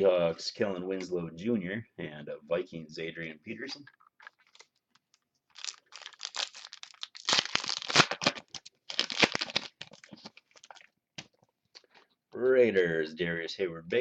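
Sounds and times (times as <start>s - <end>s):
wrapper tearing and crinkling: 5.5s - 10.9s.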